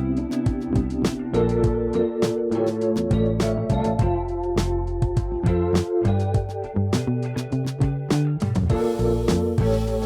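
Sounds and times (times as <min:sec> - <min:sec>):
steady drum beat: 0:00.0 - 0:01.9, 0:02.9 - 0:06.6, 0:07.6 - 0:10.0
moving bass line: 0:00.0 - 0:10.0.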